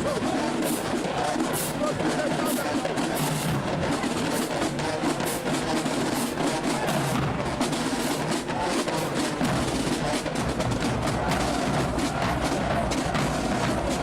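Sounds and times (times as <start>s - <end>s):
marching drumline cadence: 0.0s - 14.0s.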